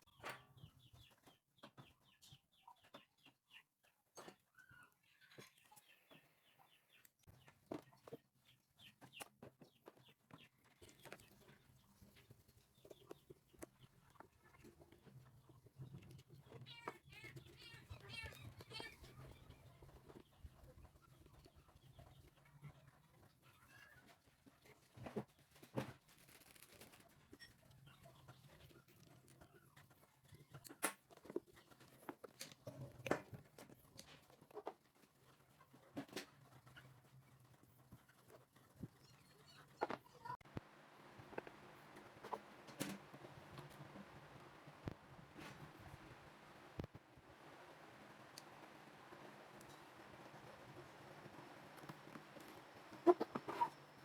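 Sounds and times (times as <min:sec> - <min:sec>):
faint low hum: 0:36.7 - 0:54.0
fowl clucking: 0:52.9 - 0:54.0.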